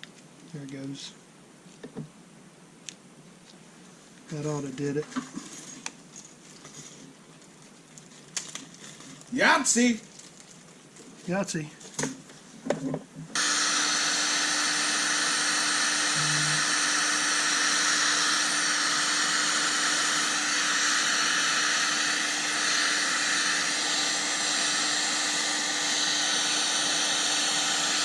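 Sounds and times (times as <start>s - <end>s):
heat gun blowing: 13.3s - 28.0s.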